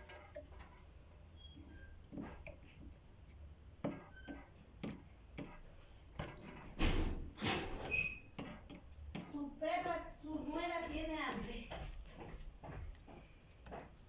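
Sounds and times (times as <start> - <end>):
high squeak: 1.4 - 2.0, 7.8 - 8.4
objects clicking and tapping: 3.8 - 9.4.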